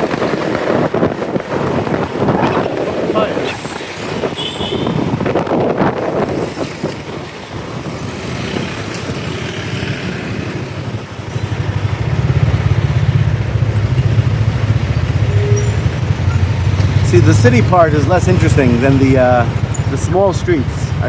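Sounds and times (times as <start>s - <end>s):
city traffic: 0.0s - 21.0s
wind noise on microphone: 0.0s - 21.0s
motorcycle engine running: 7.9s - 20.0s.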